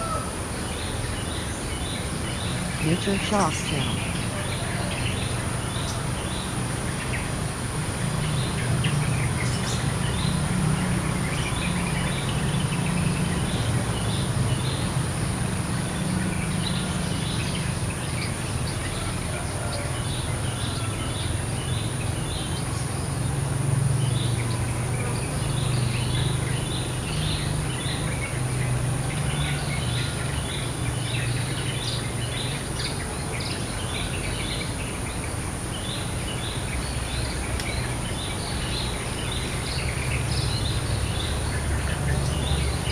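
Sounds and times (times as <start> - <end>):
birds chirping: 0.0 - 42.9.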